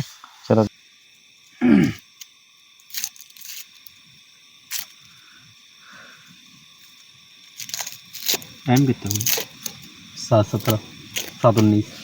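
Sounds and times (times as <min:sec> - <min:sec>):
clicks and scrapes of small objects: 0:02.2 - 0:04.0, 0:04.7 - 0:05.1, 0:06.9 - 0:11.8.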